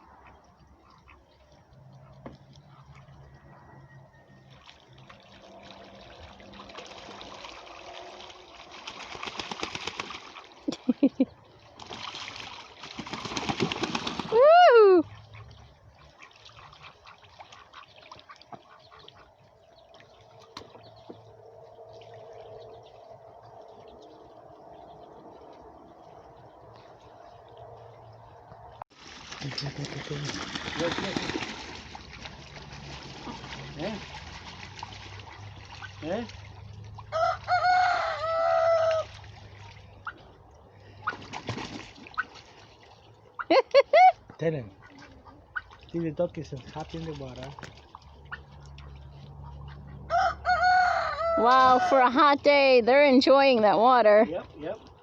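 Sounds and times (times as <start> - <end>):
water splashing: 0.0 - 55.0
rooster crowing: 3.2 - 4.5, 37.1 - 39.1, 50.1 - 52.0.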